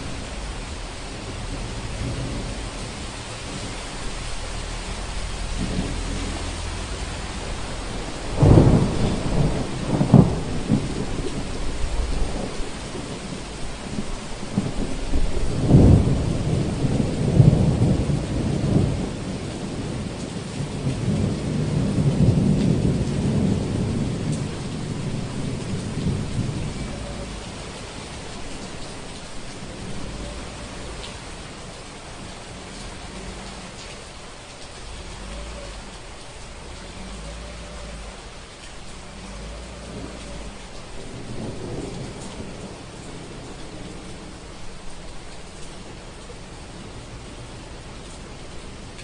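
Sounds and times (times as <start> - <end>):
steady rain: 0.0 - 49.0
thunder claps and rumbles: 0.0 - 49.0.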